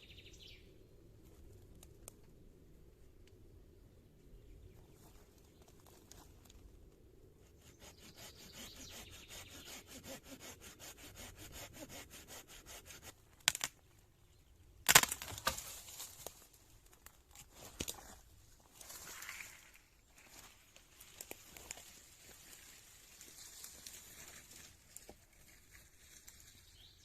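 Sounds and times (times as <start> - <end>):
hand saw cutting wood: 7.4 - 13.6
wood cracking: 13.4 - 13.8, 14.8 - 18.0.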